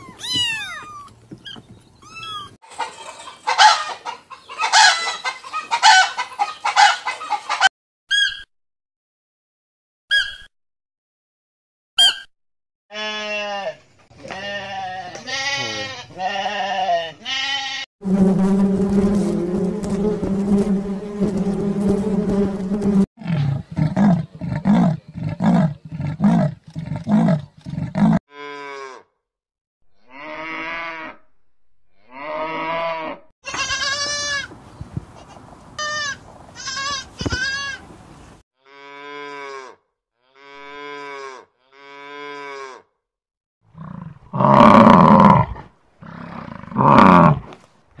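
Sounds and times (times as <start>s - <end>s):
goat bleating: 0.0s - 1.1s, 12.9s - 17.9s, 32.5s - 34.5s, 35.2s - 37.8s
honeybees humming: 18.0s - 23.1s
cattle mooing: 32.0s - 33.2s.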